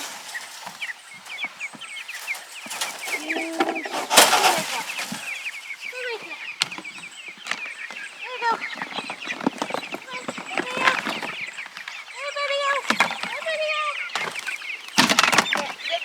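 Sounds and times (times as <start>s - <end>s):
loud rustling: 0.0s - 6.6s
chicks peeping: 0.0s - 16.0s.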